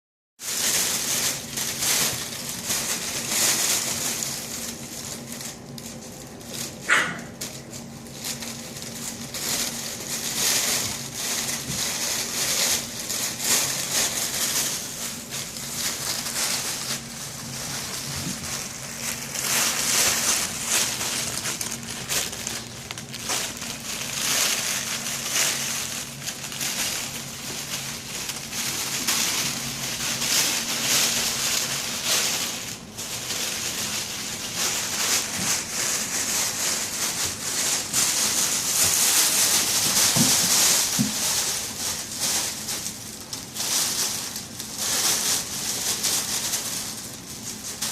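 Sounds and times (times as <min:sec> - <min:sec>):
puppies scuffling and rustling: 0:00.4 - 0:47.9
puppy yelp: 0:06.9 - 0:07.4.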